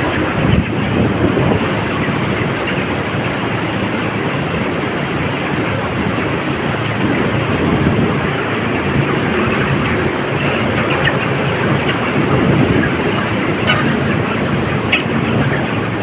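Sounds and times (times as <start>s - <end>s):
ventilation fans humming: 0.0s - 16.0s.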